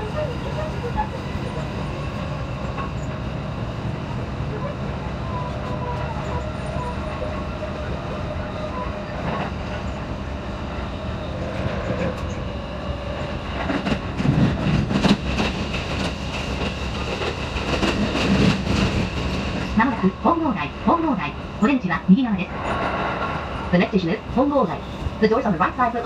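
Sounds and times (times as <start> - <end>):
train running from inside: 0.0 - 26.0
train wheel clatter: 13.2 - 20.1.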